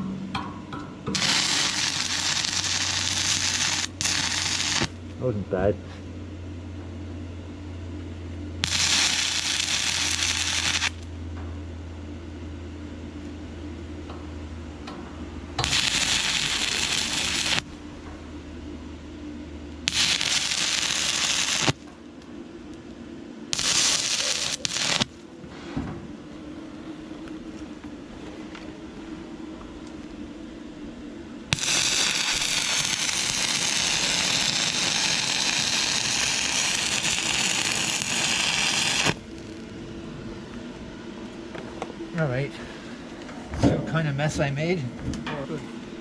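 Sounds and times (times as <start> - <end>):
welding arc crackling: 1.1 - 5.2, 8.6 - 11.1, 15.6 - 17.8, 19.8 - 22.3, 23.5 - 25.3, 31.5 - 39.9.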